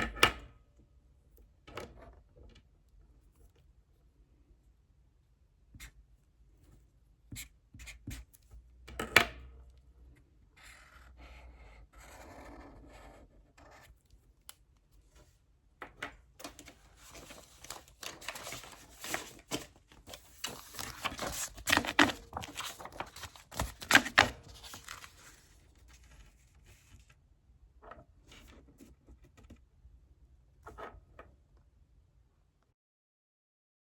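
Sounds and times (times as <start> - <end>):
pen scratching on paper: 10.6 - 13.9
paper rustling: 16.4 - 27.2.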